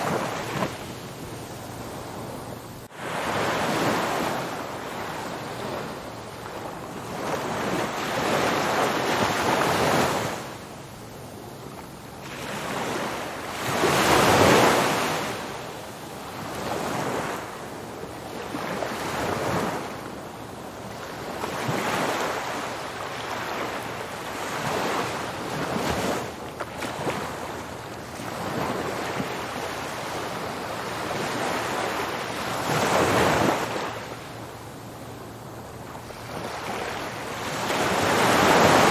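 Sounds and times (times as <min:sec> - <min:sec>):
ocean waves breaking: 0:00.0 - 0:10.6, 0:20.8 - 0:38.9.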